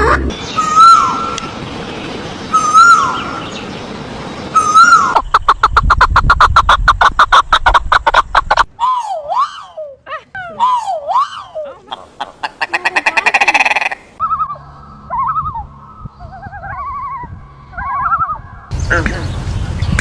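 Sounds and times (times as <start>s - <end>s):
bird trill: 0.3s - 1.6s, 2.4s - 3.8s, 4.4s - 5.9s, 12.8s - 19.4s
wavering swooping bird call: 0.3s - 1.6s, 2.5s - 3.6s, 4.5s - 18.7s
birds whistling calls: 0.3s - 6.4s, 12.2s - 20.0s.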